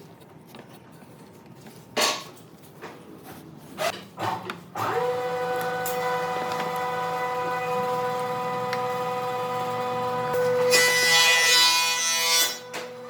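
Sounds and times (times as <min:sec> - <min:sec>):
power tool motor whining: 0:04.8 - 0:10.7.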